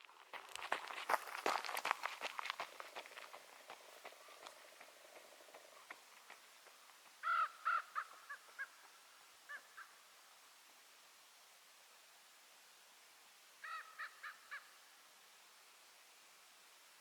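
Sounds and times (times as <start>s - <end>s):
bird harsh calls: 7.2s - 10.0s, 13.6s - 14.8s.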